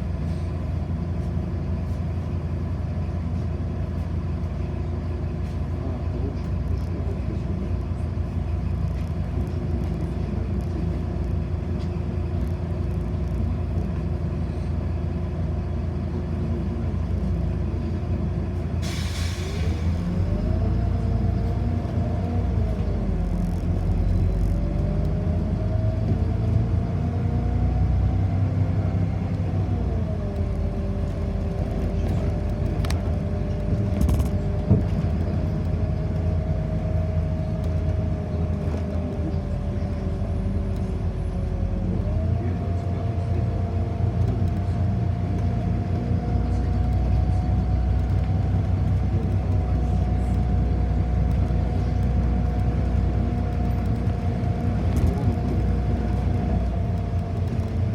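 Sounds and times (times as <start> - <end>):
bus motor whine: 0.0 - 57.9
bus rumble: 0.0 - 57.9.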